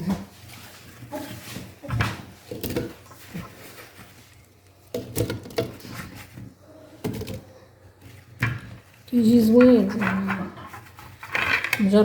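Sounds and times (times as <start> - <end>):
kitchen utensils and dishes clattering: 0.0 - 12.0.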